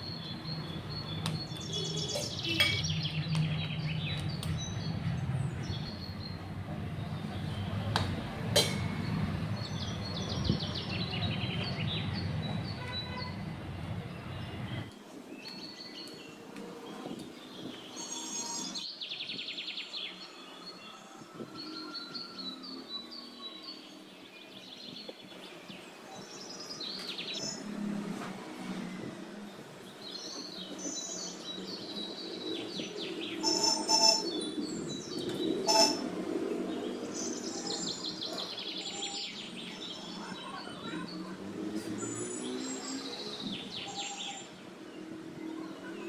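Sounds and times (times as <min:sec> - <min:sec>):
small birds chirping: 0:00.0 - 0:07.9, 0:29.4 - 0:46.0.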